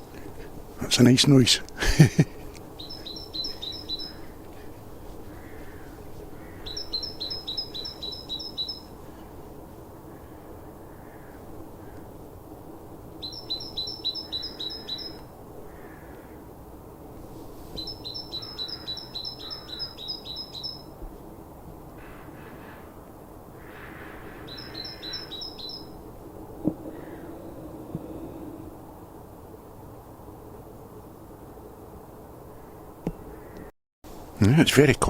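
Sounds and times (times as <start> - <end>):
small songbird singing: 2.6 - 9.4, 13.2 - 15.3, 17.7 - 20.9, 24.3 - 26.0.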